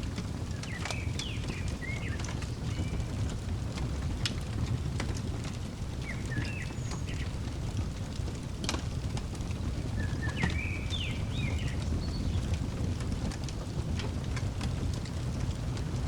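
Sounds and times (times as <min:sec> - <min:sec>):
wood fire crackling: 0:00.0 - 0:16.0
bird chirping: 0:00.5 - 0:03.1, 0:06.0 - 0:07.4, 0:10.0 - 0:12.5.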